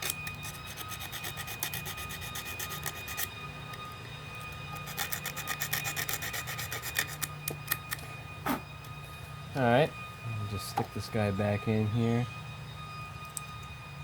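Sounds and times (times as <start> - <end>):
sandpaper scraping metal: 0.0 - 3.3, 4.7 - 7.3.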